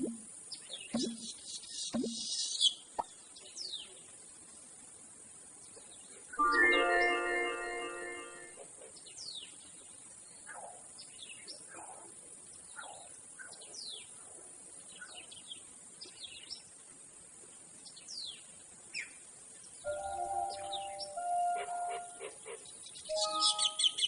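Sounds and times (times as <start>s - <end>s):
birds chirping: 0.0s - 4.1s, 17.9s - 24.0s
faint steady hiss: 0.0s - 24.0s.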